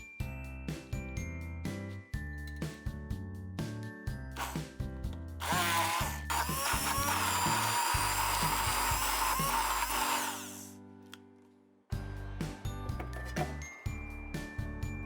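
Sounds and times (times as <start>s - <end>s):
background music: 0.0s - 15.0s
electric blender grinding: 4.4s - 4.6s, 5.4s - 10.7s.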